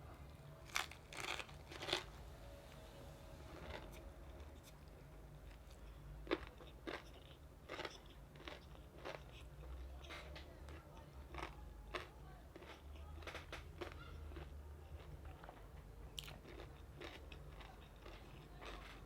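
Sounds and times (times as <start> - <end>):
crunching crispy chicken skin: 0.6 - 2.1.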